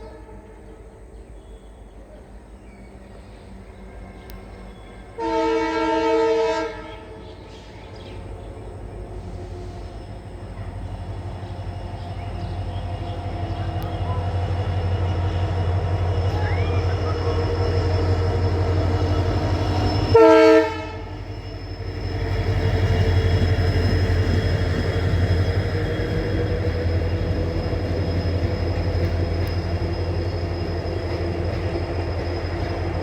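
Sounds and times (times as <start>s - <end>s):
locomotive horn blast: 0.0s - 0.9s, 4.2s - 7.3s, 13.2s - 21.3s
locomotive engine rumble: 0.0s - 33.0s.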